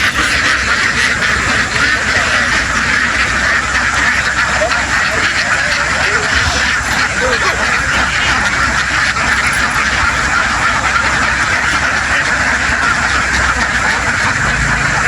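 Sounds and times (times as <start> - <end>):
flock of ducks quacking: 0.0 - 15.0.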